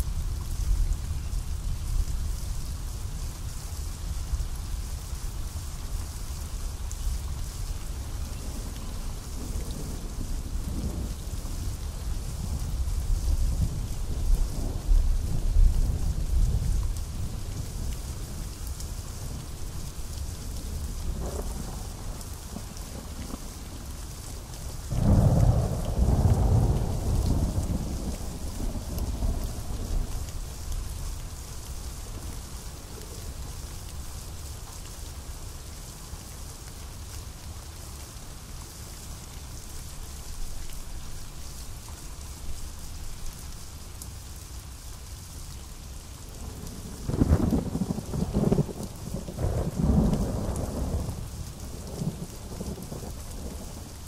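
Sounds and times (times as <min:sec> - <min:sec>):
pouring rain: 0:00.0 - 0:54.0
thunder rumbling: 0:46.4 - 0:54.0.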